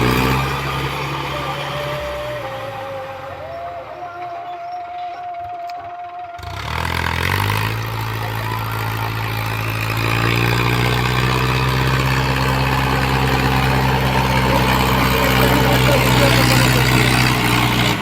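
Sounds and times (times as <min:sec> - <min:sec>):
tractor diesel engine revving: 0:00.0 - 0:18.0.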